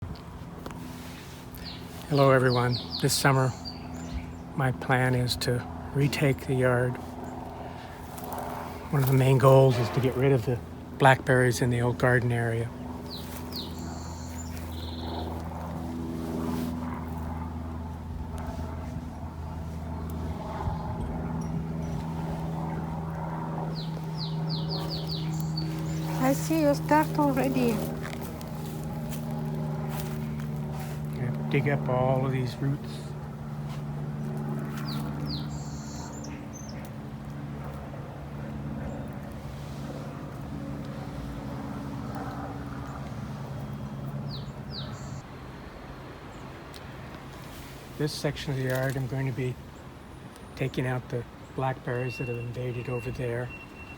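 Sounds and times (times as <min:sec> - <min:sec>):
engine running with low hum: 0:00.0 - 0:53.9
bird chirping: 0:01.6 - 0:04.6, 0:13.0 - 0:15.3, 0:23.7 - 0:28.2, 0:34.7 - 0:36.9, 0:43.6 - 0:45.2, 0:51.5 - 0:53.9.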